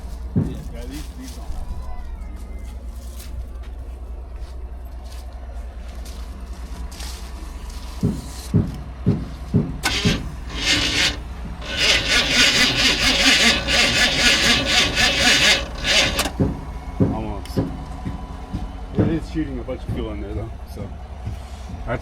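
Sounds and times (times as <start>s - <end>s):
thumps: 9.8s - 19.2s
truck engine cranking: 9.8s - 21.2s.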